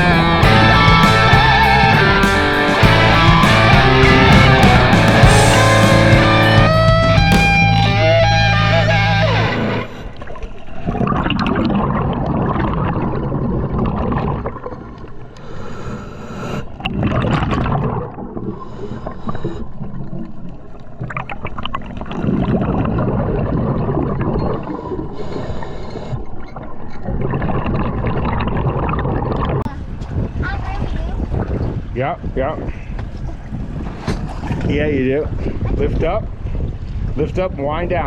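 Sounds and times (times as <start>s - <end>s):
electric guitar rock music: 0.0s - 10.0s
water around small boat: 9.9s - 38.0s.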